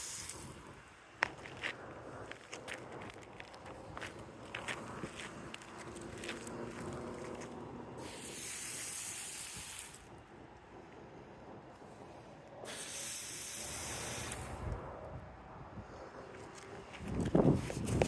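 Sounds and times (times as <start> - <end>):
spray nozzle hissing: 8.0 - 10.0, 12.7 - 14.6.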